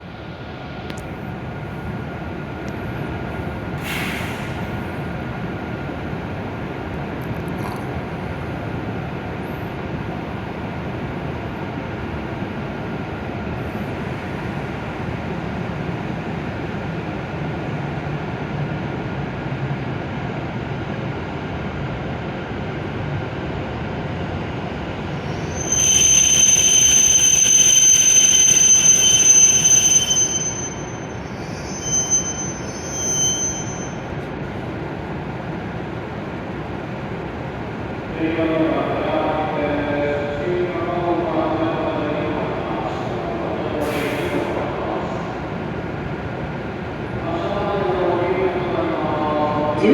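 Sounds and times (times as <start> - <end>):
train rolling with low rumble: 0.0 - 49.9
high-pitched brake squeal: 25.2 - 34.2.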